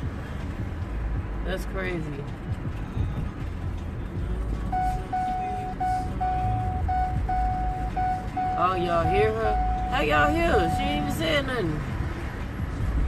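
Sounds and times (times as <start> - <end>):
road rumble inside car: 0.0 - 13.0
seatbelt warning chime beeping: 4.7 - 11.6.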